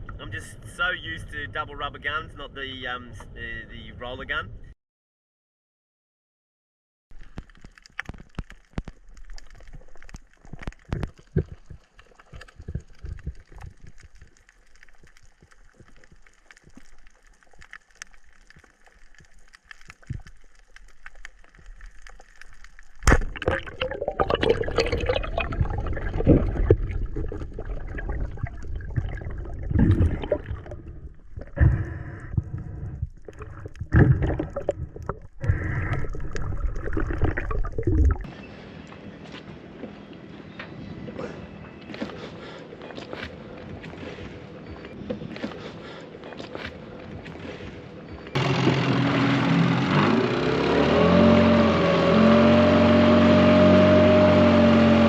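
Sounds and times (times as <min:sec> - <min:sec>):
water splashing and gurgling: 0:07.1 - 0:38.3
faint clicks and crackles: 0:07.1 - 0:40.2.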